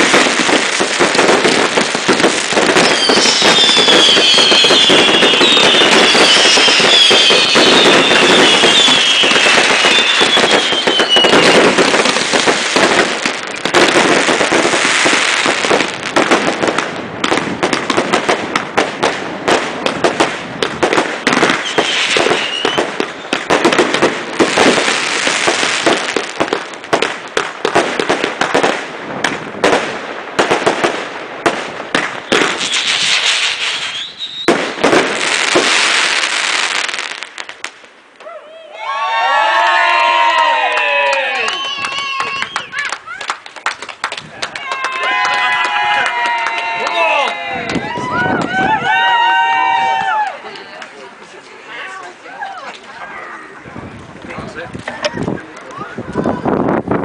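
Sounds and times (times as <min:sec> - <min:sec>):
fireworks bangs and crackle: 0:00.0 - 0:57.0
firework whistles falling in pitch: 0:02.8 - 0:11.8, 0:21.5 - 0:23.4, 0:32.3 - 0:34.6, 0:41.4 - 0:42.8.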